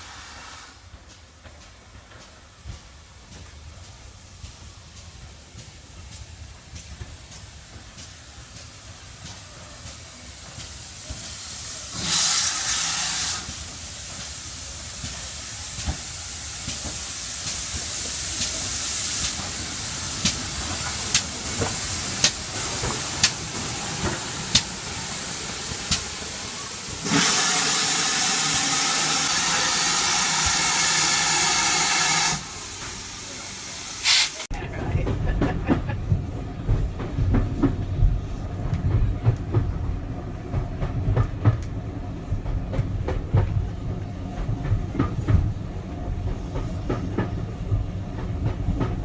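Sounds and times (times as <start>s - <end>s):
steam hissing: 0.0s - 34.5s
steam locomotive rumble: 0.0s - 49.0s.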